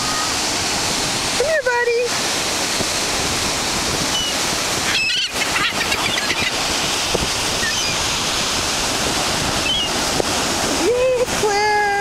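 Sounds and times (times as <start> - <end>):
ocean surf: 0.0 - 12.0
wind: 0.0 - 12.0
faint short high calls: 7.6 - 8.0.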